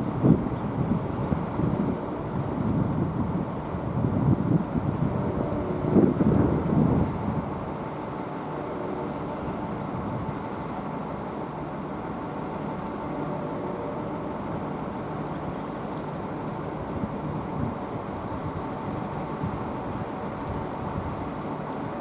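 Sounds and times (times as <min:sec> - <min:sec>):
wind gust on microphone: 0:00.0 - 0:07.7.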